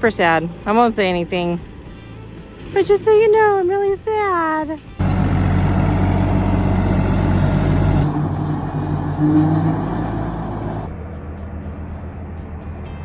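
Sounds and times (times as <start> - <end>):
tractor diesel engine running: 5.0 - 10.9.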